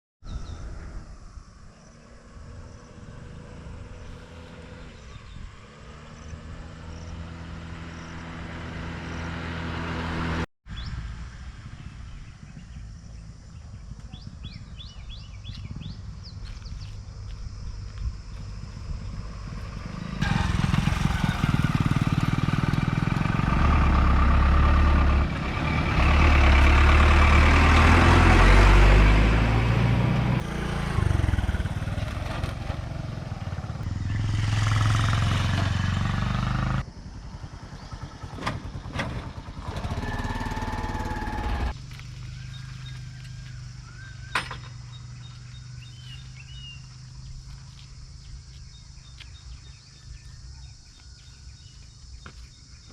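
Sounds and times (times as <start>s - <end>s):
heavy vehicle engine noise: 18.0s - 47.7s
faint bird chirps: 42.3s - 52.9s.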